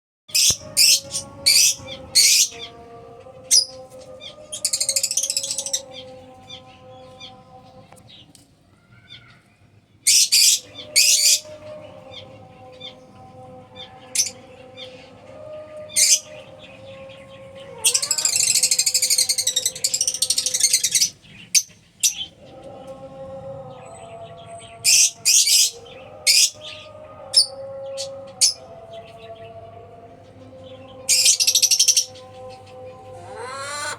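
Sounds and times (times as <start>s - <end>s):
lovebirds shrieking and chattering: 0.3s - 33.9s
lovebirds chattering: 15.8s - 22.6s, 30.7s - 33.9s
shrill bird calls: 17.7s - 22.3s.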